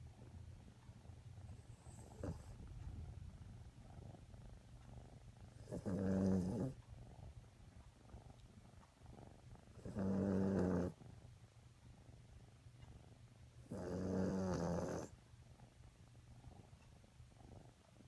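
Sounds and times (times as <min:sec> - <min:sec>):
faint low hum: 0:00.0 - 0:18.0
dog snoring: 0:01.4 - 0:03.2, 0:03.8 - 0:07.3, 0:09.1 - 0:11.2, 0:13.6 - 0:15.2.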